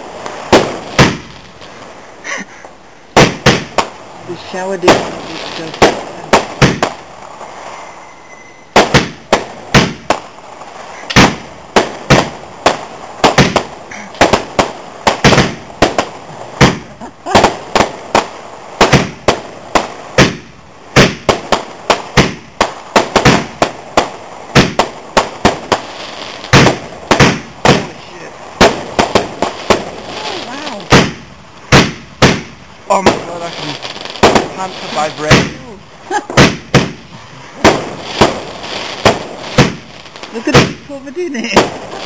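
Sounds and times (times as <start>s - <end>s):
fireworks banging: 0.0s - 42.0s.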